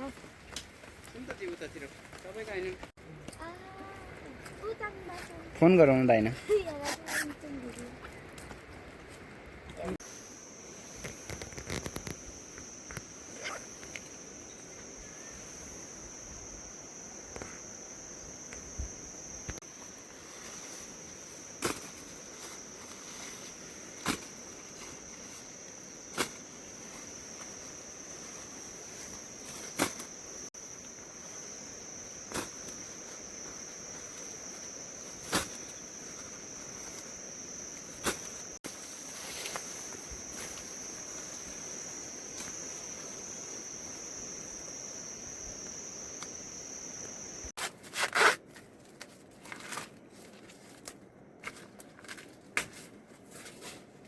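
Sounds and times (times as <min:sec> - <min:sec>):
insects chirring: 0:00.0 - 0:09.0, 0:09.8 - 0:47.6
rustling noise: 0:19.4 - 0:30.5, 0:32.2 - 0:41.6, 0:47.5 - 0:54.0.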